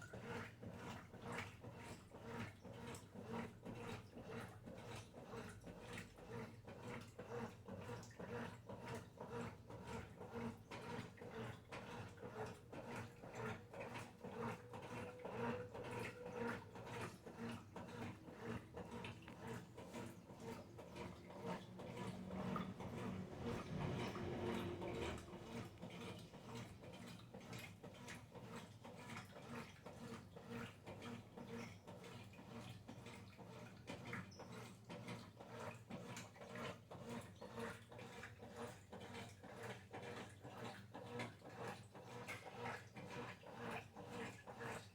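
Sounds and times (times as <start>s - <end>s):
washing machine churning: 0.0s - 44.9s.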